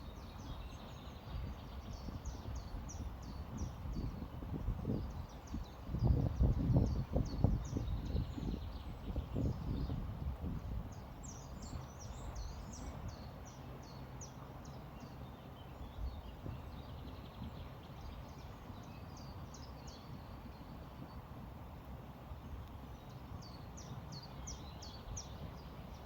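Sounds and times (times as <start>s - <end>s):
small songbird singing: 0.0s - 21.2s, 22.9s - 26.0s
river flowing: 10.3s - 26.0s.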